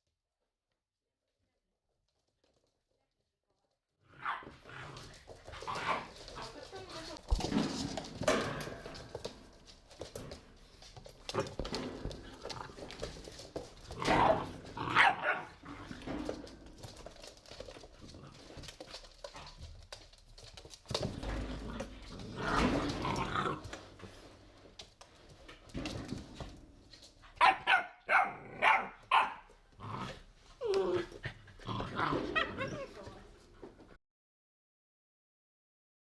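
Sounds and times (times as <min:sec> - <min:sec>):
puppies barking: 0:14.0 - 0:15.6, 0:27.4 - 0:29.5.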